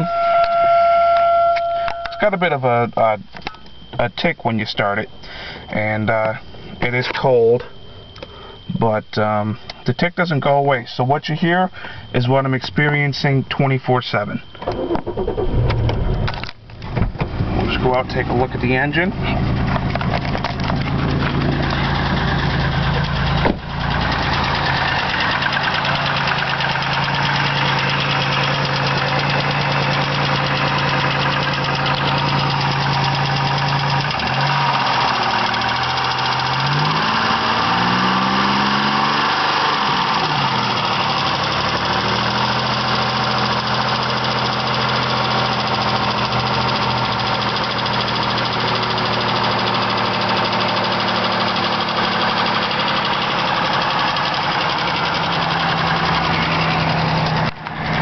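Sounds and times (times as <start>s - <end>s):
car engine idling: 14.2s - 58.0s
engine ticking: 14.5s - 58.0s.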